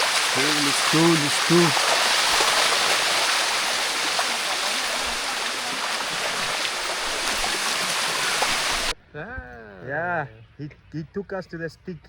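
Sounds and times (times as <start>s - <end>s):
water rushing down a waterfall: 0.0s - 8.9s.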